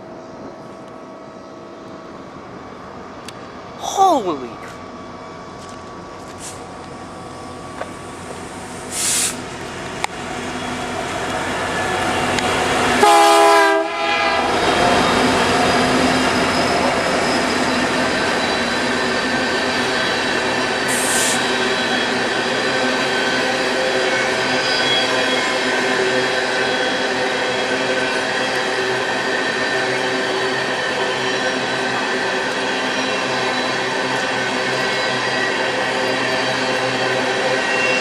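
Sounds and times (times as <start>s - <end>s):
diesel train rumbling past: 4.5s - 38.0s
train horn blast: 13.0s - 14.6s.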